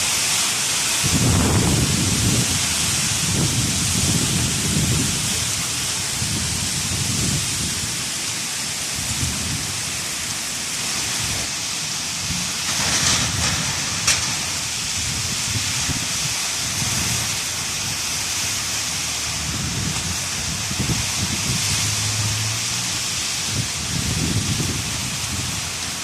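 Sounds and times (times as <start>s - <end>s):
hail and heavy rain pelting: 0.0s - 26.0s
low gusty rumble: 1.0s - 26.0s
sharp crack: 12.3s - 14.8s.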